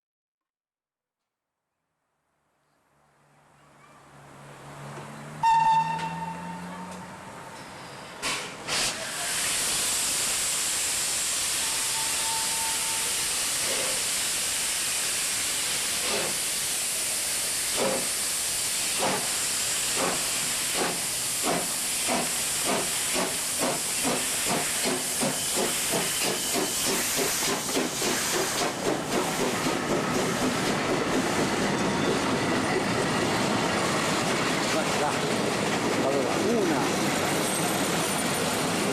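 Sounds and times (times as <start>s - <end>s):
steam locomotive exhaust chuffs: 7.6s - 33.2s
steam hissing: 7.7s - 33.2s.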